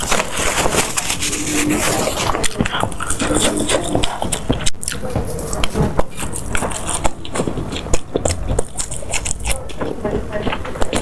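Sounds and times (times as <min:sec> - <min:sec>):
person chewing food: 0:00.0 - 0:11.0
wet mouth clicks: 0:01.3 - 0:09.8.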